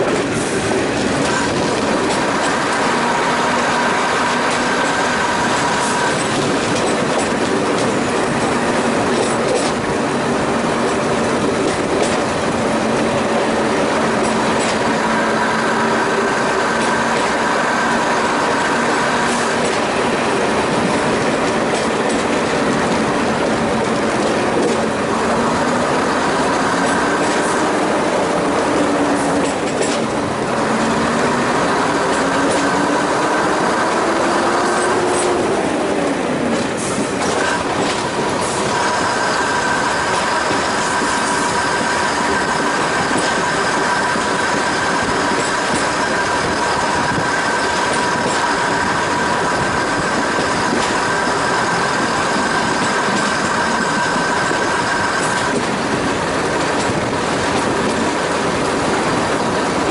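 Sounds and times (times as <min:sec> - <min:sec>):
wheels rumbling on rail: 0:00.0 - 0:59.9
high wheel squeal: 0:36.7 - 0:56.5.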